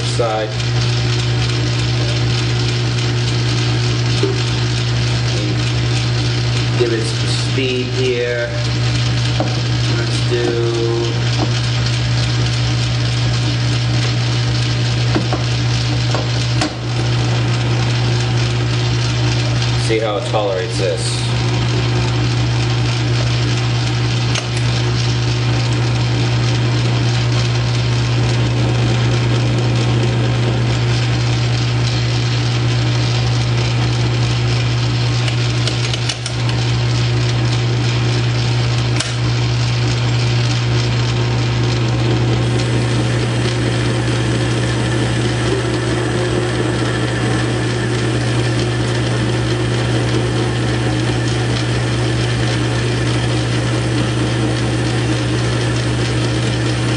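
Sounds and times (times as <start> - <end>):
tool cutting metal rod: 0.0 - 12.5, 35.2 - 36.6, 38.8 - 39.4
lathe motor hum: 0.0 - 56.9.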